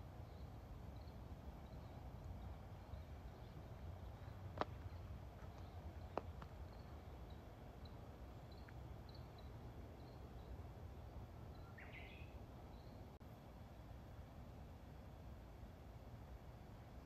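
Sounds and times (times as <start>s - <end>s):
low background rumble: 0.0s - 17.0s
faint bird chirps: 0.2s - 10.7s, 11.4s - 13.2s.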